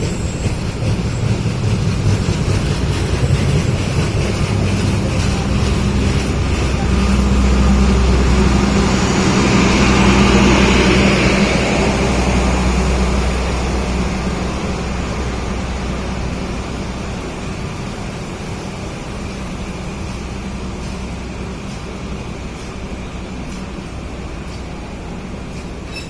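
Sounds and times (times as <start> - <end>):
diesel locomotive engine drone: 0.0 - 26.0
wheels hissing on rail: 0.0 - 26.0.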